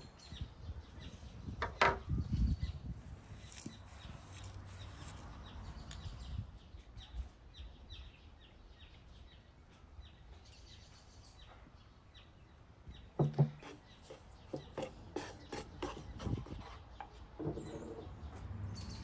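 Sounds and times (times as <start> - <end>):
bird chirping: 0.0 - 19.0
glass bottle knock on wooden table: 13.2 - 13.6.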